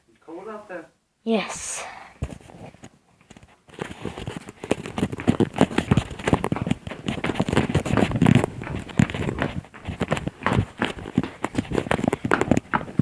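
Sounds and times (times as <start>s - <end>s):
dog claws clicking on hard floor: 3.3s - 13.0s.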